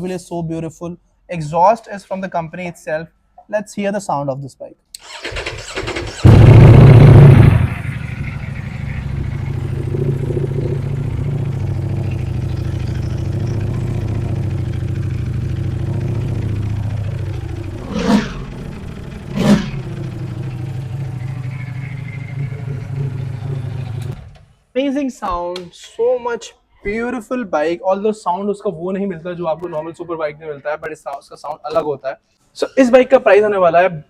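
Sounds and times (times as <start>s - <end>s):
motorcycle engine starting and idling: 5.0s - 24.4s
motorcycle throttle blips: 6.3s - 24.2s.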